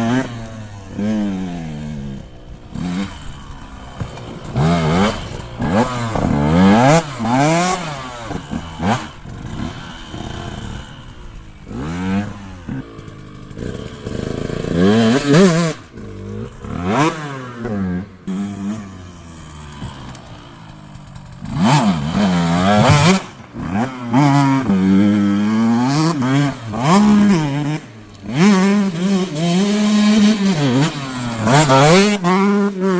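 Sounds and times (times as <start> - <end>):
two-stroke motocross bike revving: 0.0 - 32.9.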